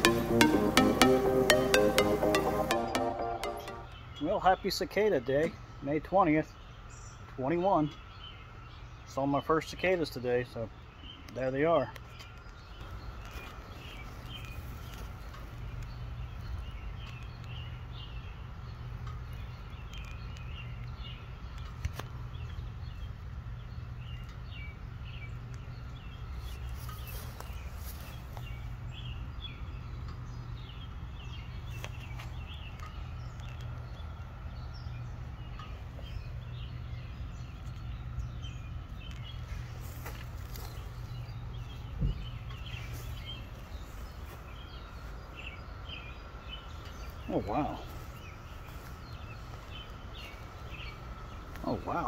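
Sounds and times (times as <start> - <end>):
birds chirping: 0.0 - 52.0
steady low hum: 12.8 - 52.0.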